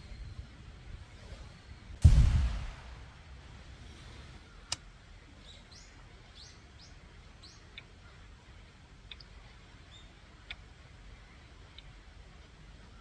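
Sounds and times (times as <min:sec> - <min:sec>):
faint low rumble: 0:02.0 - 0:04.7
soft ticks: 0:07.4 - 0:08.0, 0:08.9 - 0:13.0.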